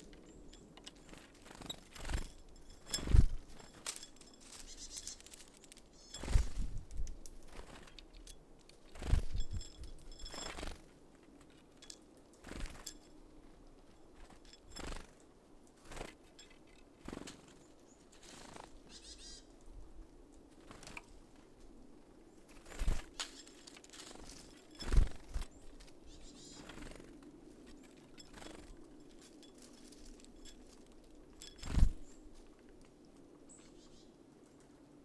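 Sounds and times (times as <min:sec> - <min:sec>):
faint high bird calls: 0:04.4 - 0:06.3, 0:18.8 - 0:19.6, 0:25.6 - 0:26.8, 0:33.5 - 0:34.2.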